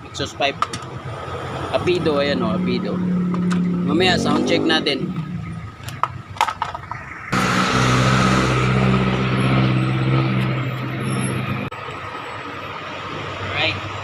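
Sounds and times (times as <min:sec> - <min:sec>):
engine running loudly: 0:07.3 - 0:11.7.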